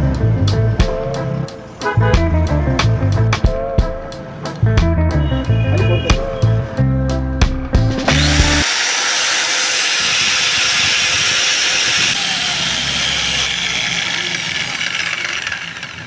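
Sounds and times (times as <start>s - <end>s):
background music: 0.0s - 8.6s
angle grinder running: 8.1s - 16.0s.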